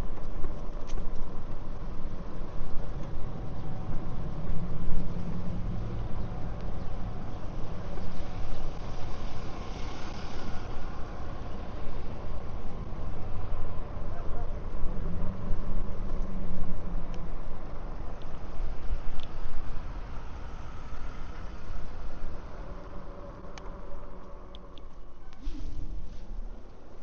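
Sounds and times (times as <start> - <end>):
traffic rumble: 0.0 - 27.0
passing vehicle hiss: 7.1 - 13.5, 18.7 - 24.0, 25.2 - 27.0.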